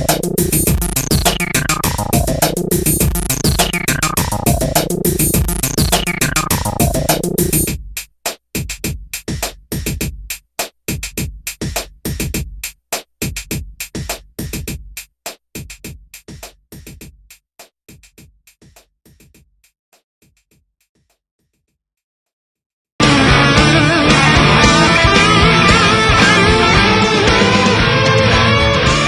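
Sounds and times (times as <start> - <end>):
electronic music: 0.0 - 7.7, 23.0 - 29.0
stuttering beat hits: 0.0 - 15.0.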